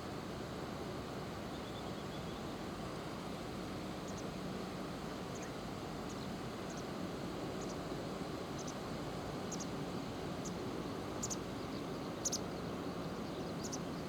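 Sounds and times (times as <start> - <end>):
small birds chirping: 11.2 - 14.0.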